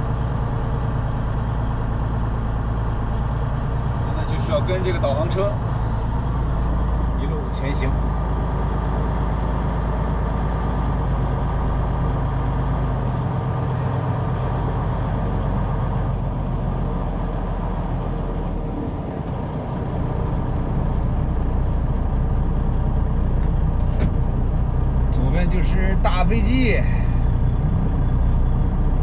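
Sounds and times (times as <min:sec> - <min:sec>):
truck diesel engine from cab: 0:00.0 - 0:29.0.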